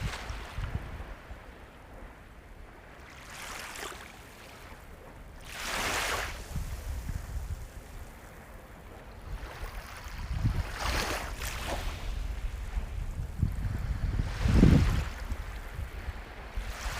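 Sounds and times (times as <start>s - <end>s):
sea waves breaking: 0.0s - 16.9s.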